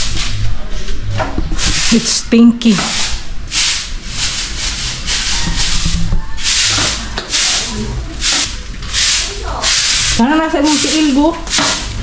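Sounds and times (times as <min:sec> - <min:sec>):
scratchy brushing on hard surface: 0:02.8 - 0:12.0.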